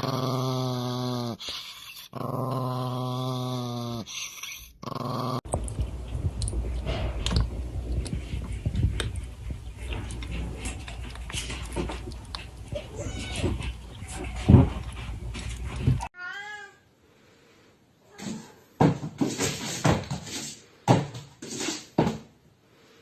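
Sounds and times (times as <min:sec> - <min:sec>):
low rumble: 0:05.5 - 0:16.1.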